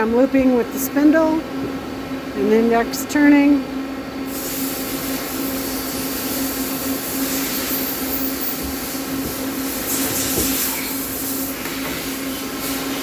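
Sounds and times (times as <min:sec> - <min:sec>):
lathe running: 0:04.3 - 0:13.0.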